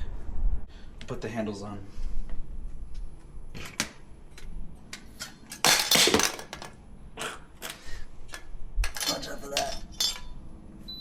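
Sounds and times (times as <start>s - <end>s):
clicks and knocks of hard parts: 7.6s - 10.3s.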